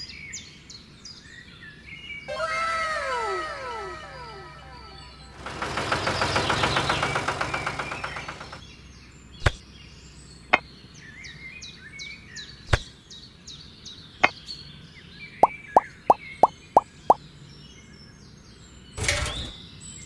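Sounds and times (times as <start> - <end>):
faint birdsong: 0.0 - 20.0
fast rattling buzz: 5.3 - 8.6.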